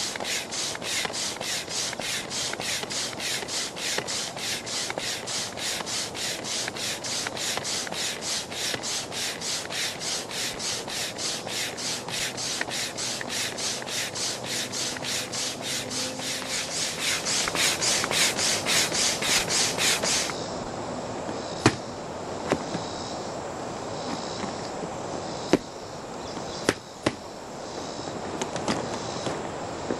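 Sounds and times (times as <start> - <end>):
manual air pump strokes: 0.0 - 20.4.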